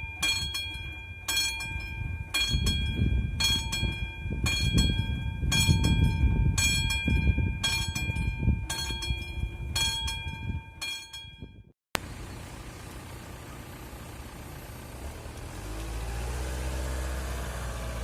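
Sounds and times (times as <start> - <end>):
level crossing bell ringing: 0.0 - 11.4
diesel train rumbling: 12.0 - 18.0.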